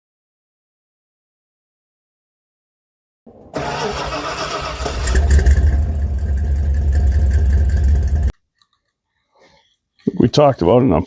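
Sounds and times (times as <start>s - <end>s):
vehicle engine starting and running: 3.3s - 8.3s.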